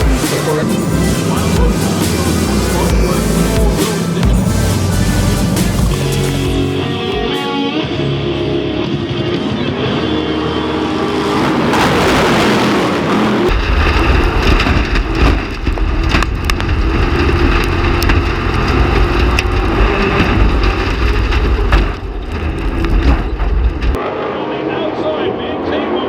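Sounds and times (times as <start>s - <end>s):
sharp engine crackles: 0.0s - 7.0s, 9.4s - 24.5s
background music: 0.0s - 11.8s
race truck engines rumbling: 0.0s - 26.0s.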